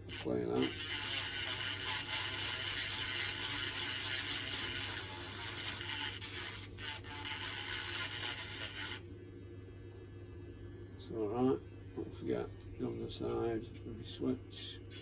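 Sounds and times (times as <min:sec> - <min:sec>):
grinding pen scraping metal: 0:00.0 - 0:09.1.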